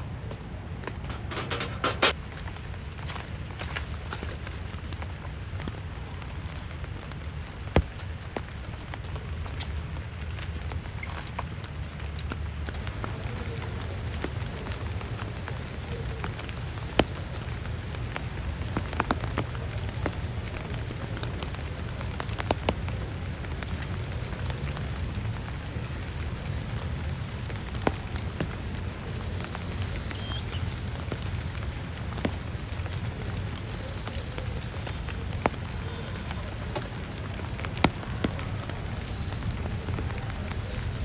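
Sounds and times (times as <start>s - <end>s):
heavy rain falling: 0.0s - 41.0s
large raindrops tapping: 0.0s - 41.0s.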